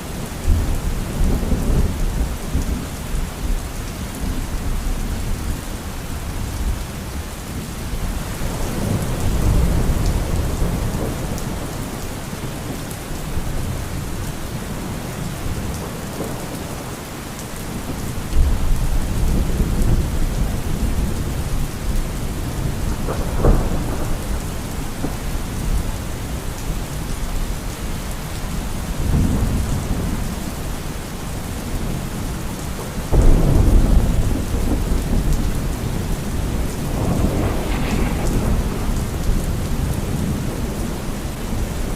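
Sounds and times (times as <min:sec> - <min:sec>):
heavy rain: 0:00.0 - 0:41.9
thunder rumbling: 0:17.8 - 0:27.5, 0:31.8 - 0:41.9
sharp thunderclap: 0:22.6 - 0:25.8, 0:33.1 - 0:41.8.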